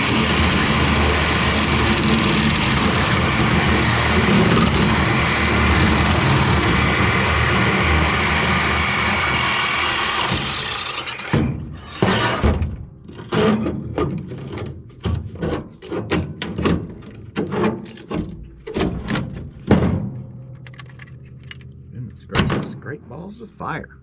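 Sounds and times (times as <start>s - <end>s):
steady machine noise: 0.0s - 11.4s
metal scrap knocking: 10.3s - 14.5s.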